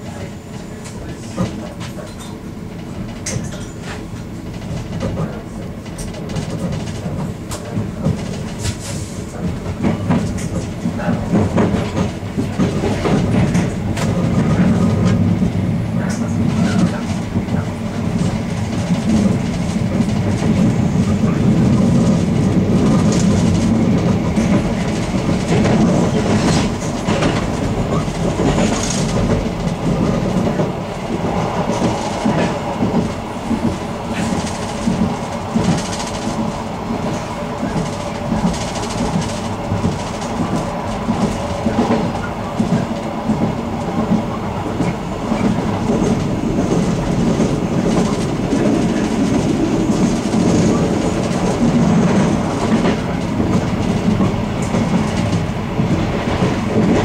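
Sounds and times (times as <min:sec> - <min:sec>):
train rumbling on rails: 0:00.0 - 0:57.0
wheels clacking over rail joints: 0:16.1 - 0:57.0.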